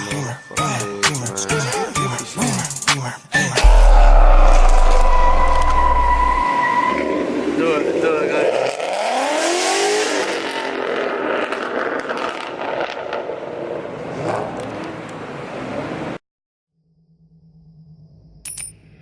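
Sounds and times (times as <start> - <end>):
car engine revving: 3.6 - 6.6.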